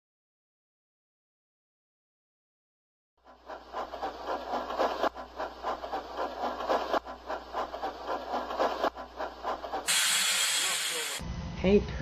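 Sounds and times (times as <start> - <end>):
model train wheels clattering: 3.3 - 11.2.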